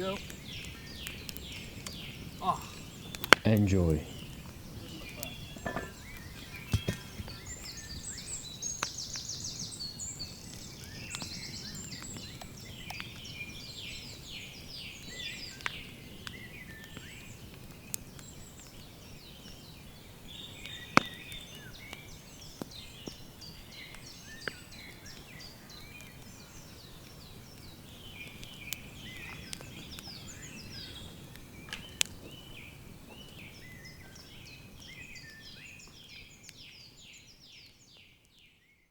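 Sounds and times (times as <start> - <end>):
birds chirping and trilling: 0.0 - 38.5
sharp isolated clicks: 3.1 - 3.5.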